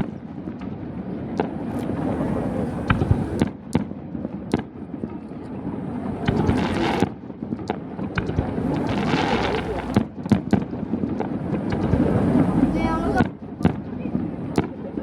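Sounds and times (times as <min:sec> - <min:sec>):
fireworks bursting: 0:01.4 - 0:03.8, 0:06.2 - 0:13.8
low rumble: 0:08.5 - 0:10.0, 0:11.8 - 0:13.2.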